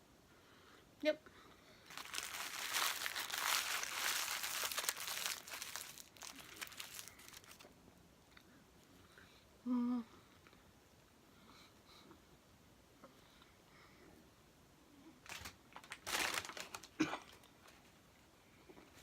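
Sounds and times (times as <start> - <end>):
paper wrapper crinkling: 1.9 - 7.7, 15.3 - 17.0.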